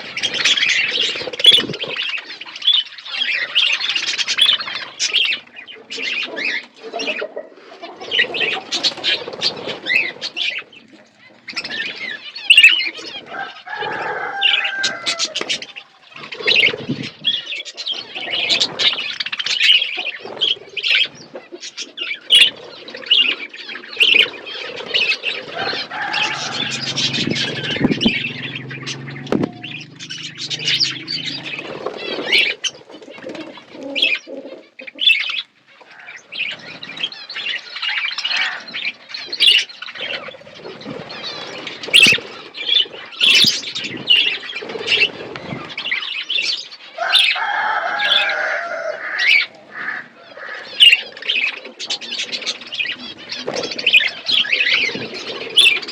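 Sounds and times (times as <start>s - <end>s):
budgerigars chirping and chattering: 0.0s - 48.4s, 49.0s - 55.9s
wing flutters: 8.0s - 10.7s, 22.4s - 34.2s, 39.4s - 46.5s.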